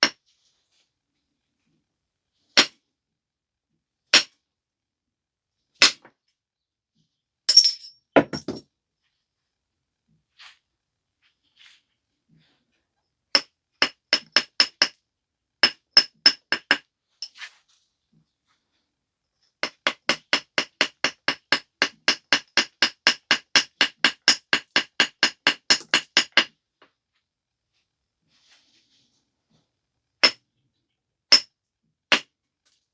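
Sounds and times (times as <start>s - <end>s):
tool striking stone: 13.4s - 15.0s, 15.6s - 16.8s, 19.6s - 26.5s, 31.3s - 31.5s, 32.1s - 32.3s.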